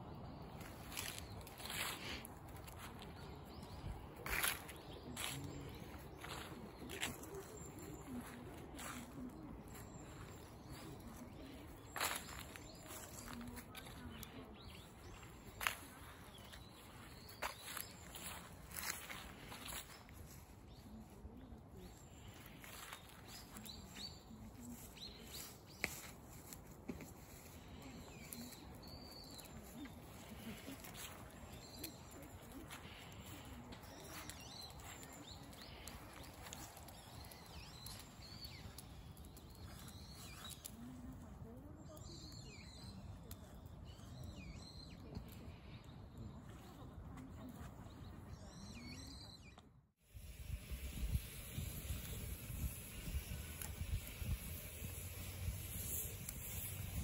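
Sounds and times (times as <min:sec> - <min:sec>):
birds calling: 0:00.0 - 0:21.3, 0:22.0 - 0:41.1
campfire crackling: 0:00.0 - 0:46.7, 0:50.1 - 0:57.0
bird chirping: 0:27.4 - 0:40.9.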